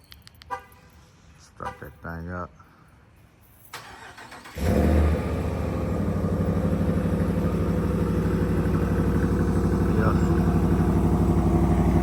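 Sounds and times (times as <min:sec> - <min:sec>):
pickup truck engine idling: 0:04.6 - 0:12.0.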